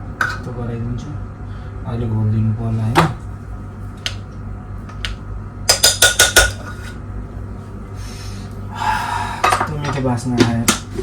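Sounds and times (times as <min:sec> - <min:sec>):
low steady hum: 0:00.0 - 0:11.0
metal spoon clinking against pot: 0:05.7 - 0:06.8.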